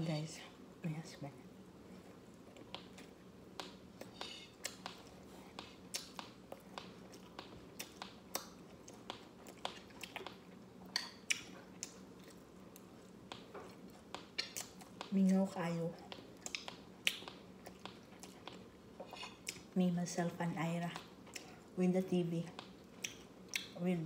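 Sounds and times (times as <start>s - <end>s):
chewing crunchy rice crust: 3.9s - 15.2s, 16.0s - 19.7s.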